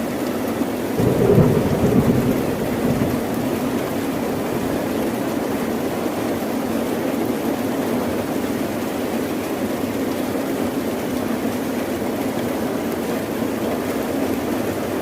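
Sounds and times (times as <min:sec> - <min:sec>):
steady rain: 0:00.0 - 0:15.0
low rumble: 0:01.0 - 0:05.9.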